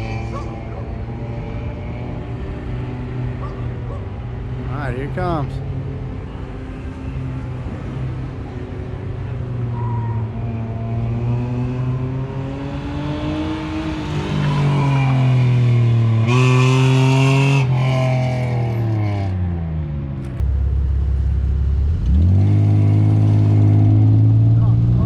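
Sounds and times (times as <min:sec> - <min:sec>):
car engine accelerating hard: 0:00.0 - 0:05.6, 0:07.0 - 0:25.0.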